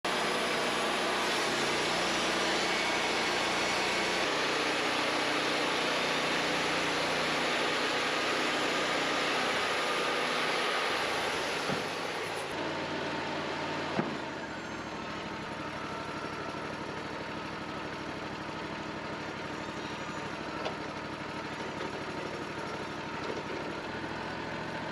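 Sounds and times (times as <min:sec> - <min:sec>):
band sawmill sawing log: 0:00.0 - 0:14.4
sawmill engine running: 0:00.0 - 0:24.9.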